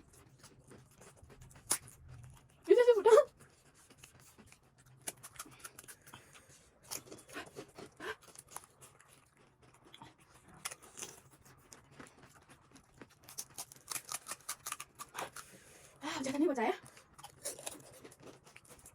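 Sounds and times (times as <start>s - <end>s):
crisp food crunching: 0.0s - 2.7s, 3.3s - 15.7s, 16.8s - 18.9s.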